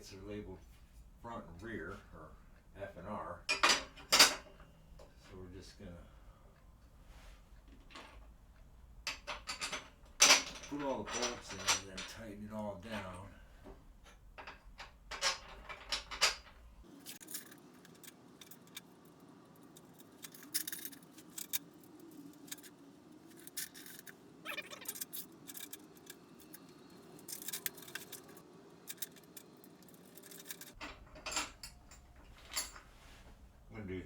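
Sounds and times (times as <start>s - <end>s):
bolts and nuts clinking: 3.5s - 5.2s, 9.0s - 33.1s.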